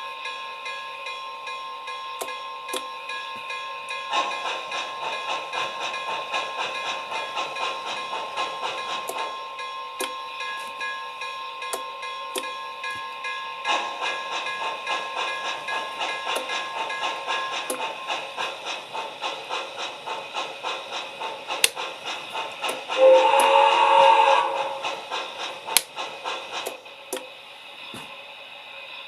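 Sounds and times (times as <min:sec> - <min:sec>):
model train steam chuffing: 0:04.0 - 0:10.6, 0:13.6 - 0:29.0
steam whistle blowing: 0:22.9 - 0:25.4.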